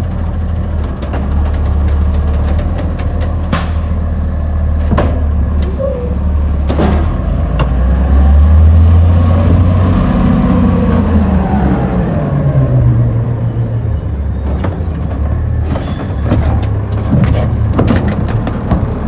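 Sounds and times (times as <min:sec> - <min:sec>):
garbage truck engine droning: 0:00.0 - 0:19.0
sharp metallic clanks: 0:03.5 - 0:04.0.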